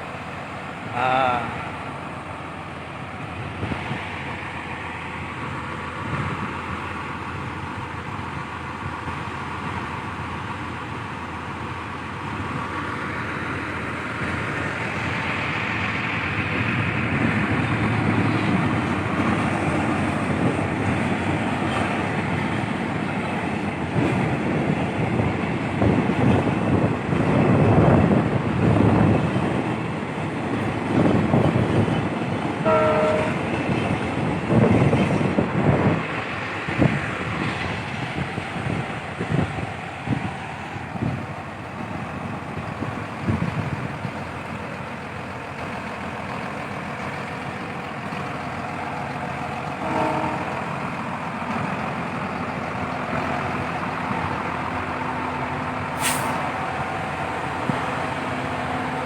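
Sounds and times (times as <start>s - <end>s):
diesel engine running: 34.5s - 59.0s.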